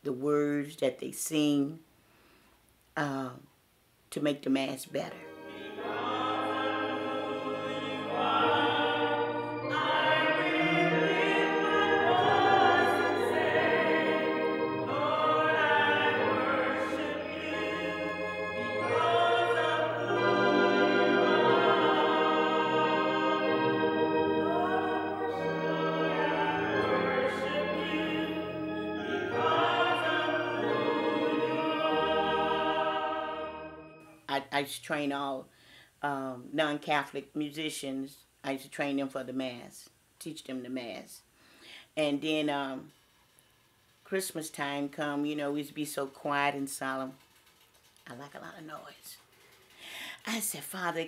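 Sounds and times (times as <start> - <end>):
low instrumental accompaniment: 5.1 - 34.1
choir singing a sacred song: 5.1 - 34.2.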